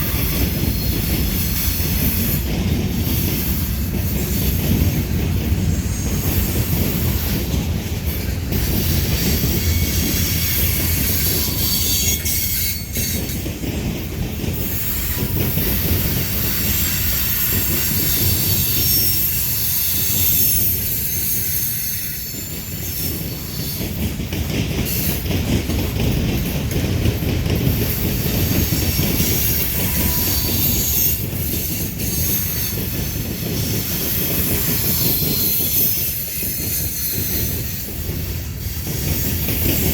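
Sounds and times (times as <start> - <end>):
freight train wheels rumbling: 0.0 - 39.9
high thin wheel squeal: 5.7 - 13.4, 14.6 - 24.1, 27.9 - 37.9.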